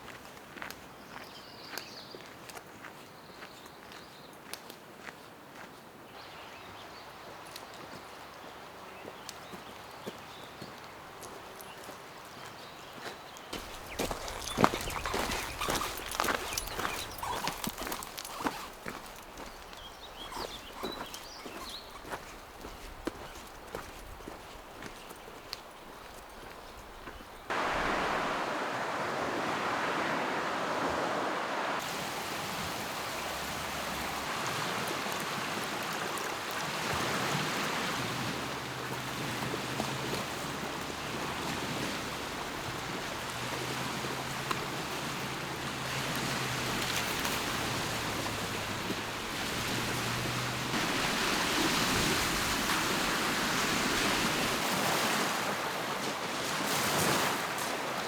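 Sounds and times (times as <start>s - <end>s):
waves washing against shore: 13.6s - 24.5s, 27.5s - 58.0s.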